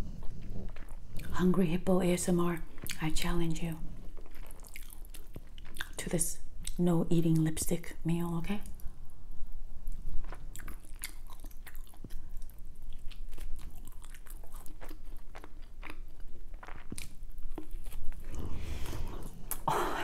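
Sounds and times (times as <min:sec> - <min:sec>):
woman chewing and biting food: 0:00.0 - 0:06.8, 0:09.3 - 0:20.0
wet mouth clicks and crunches: 0:04.1 - 0:06.8, 0:09.9 - 0:18.3.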